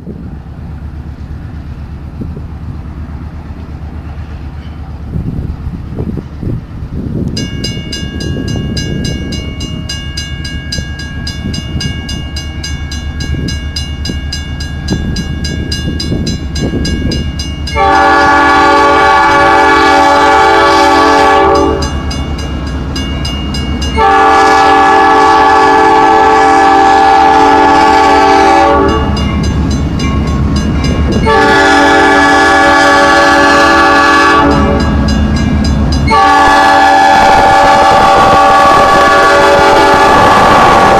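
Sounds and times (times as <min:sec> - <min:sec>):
train running: 0:00.0 - 0:40.9
locomotive air horn blasts: 0:17.7 - 0:22.0, 0:23.9 - 0:29.4, 0:31.1 - 0:35.2, 0:36.0 - 0:40.9.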